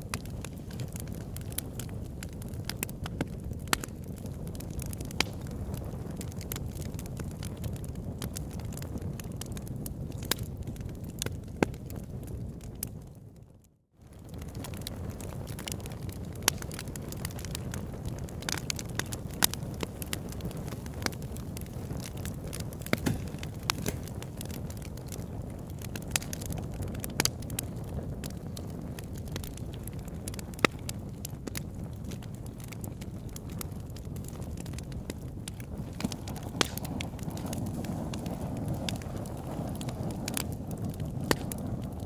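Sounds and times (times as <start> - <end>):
fire crackling and popping: 0.0 - 42.0.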